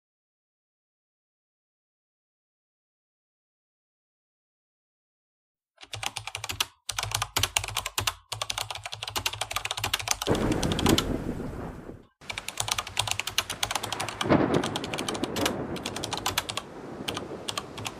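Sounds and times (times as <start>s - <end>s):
keyboard typing clicks: 5.8s - 11.1s, 12.3s - 17.9s.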